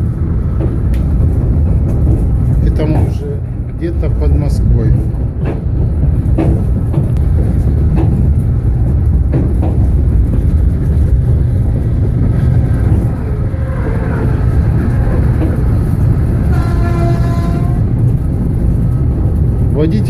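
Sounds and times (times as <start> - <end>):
train rumbling: 0.0 - 20.0
train horn blast: 16.5 - 17.9.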